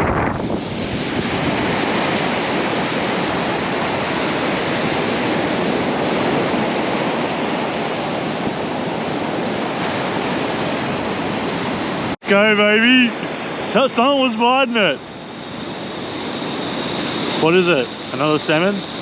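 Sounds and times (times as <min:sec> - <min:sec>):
surf washing onto beach: 0:00.0 - 0:12.0.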